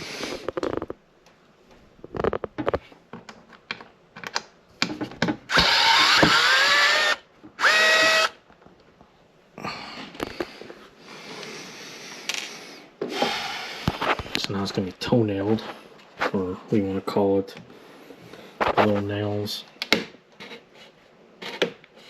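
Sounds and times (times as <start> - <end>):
power drill whirring: 5.5 - 8.4.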